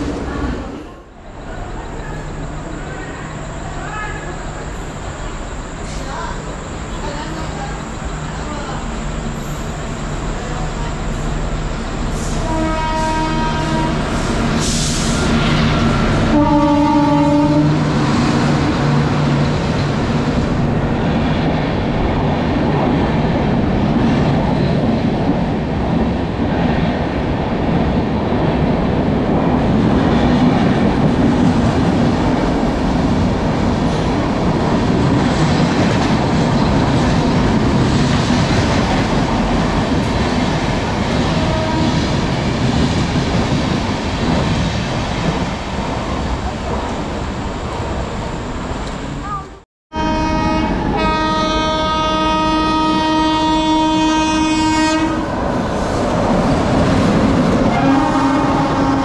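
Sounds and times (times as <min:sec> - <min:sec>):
train rumble and wheel clatter: 0:00.0 - 0:59.0
train horn: 0:12.4 - 0:14.4, 0:16.2 - 0:17.9, 0:41.3 - 0:42.1, 0:49.9 - 0:55.3, 0:57.7 - 0:59.0.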